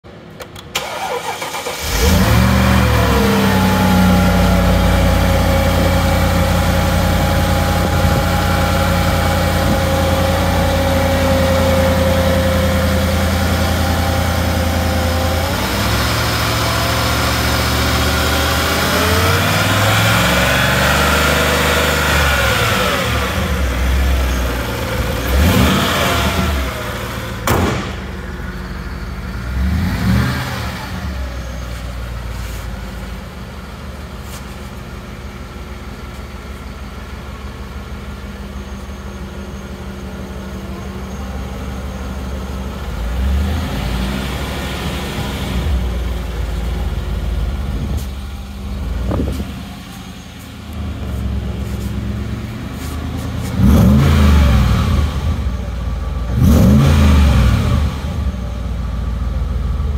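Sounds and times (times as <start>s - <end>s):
engine cranking and idling: 0.1s - 20.0s, 21.4s - 59.9s
car hood slamming shut: 27.4s - 28.2s
engine revving blips: 50.7s - 58.6s.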